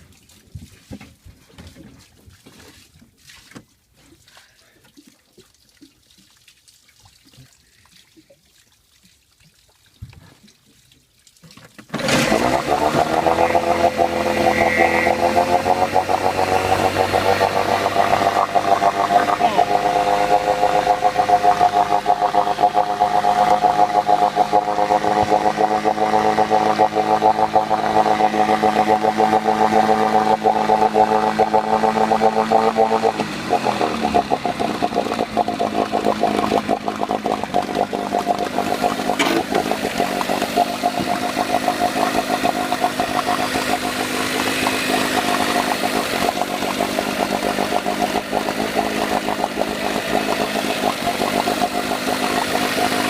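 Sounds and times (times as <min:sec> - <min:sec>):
outboard motor running: 0:11.9 - 0:53.0.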